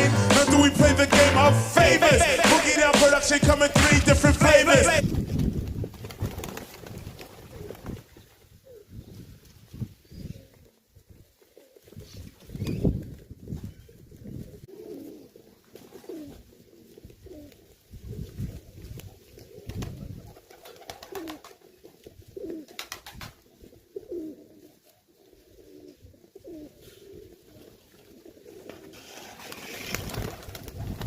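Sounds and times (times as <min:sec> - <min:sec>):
pigeons cooing: 0:10.1 - 0:12.9, 0:13.6 - 0:30.8.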